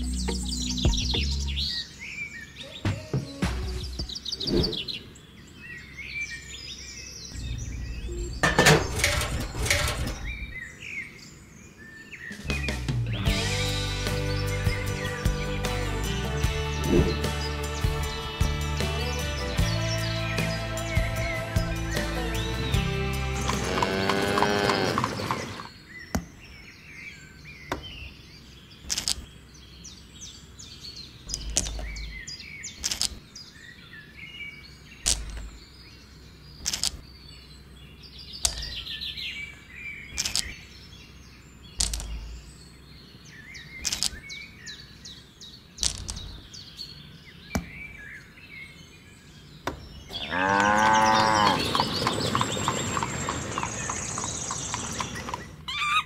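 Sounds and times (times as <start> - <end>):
birds chirping: 0.0 - 56.0
loud animal call: 23.3 - 25.7, 50.1 - 56.0
pebbles clicking together: 41.8 - 42.3.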